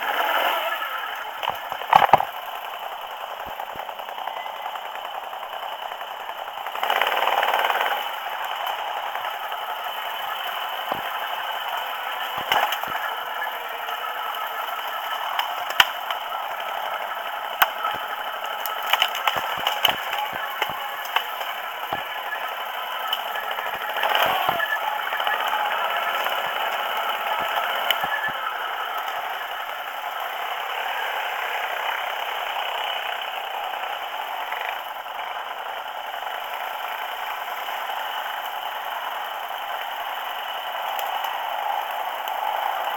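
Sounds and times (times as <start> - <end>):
quad bike riding: 0.0 - 42.9
rattle and clatter: 1.2 - 30.7.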